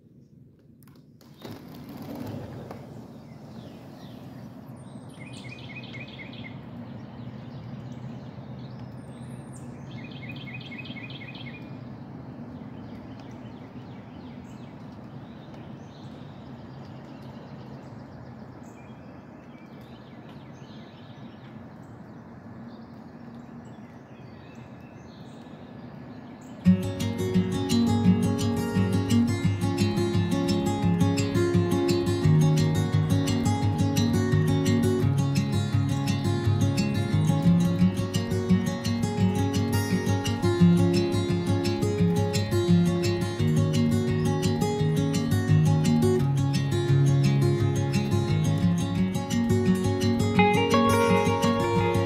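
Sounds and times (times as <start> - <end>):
bird trill: 3.0 - 11.8, 26.3 - 52.0.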